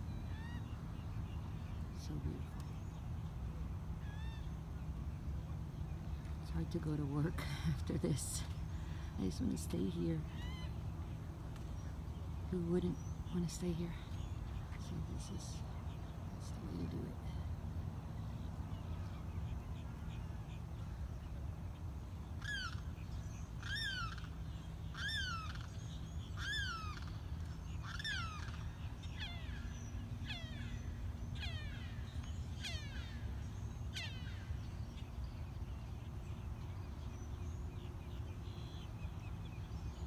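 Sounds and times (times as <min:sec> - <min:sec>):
steady low hum: 0:00.0 - 0:40.0
bird calling: 0:22.4 - 0:40.0.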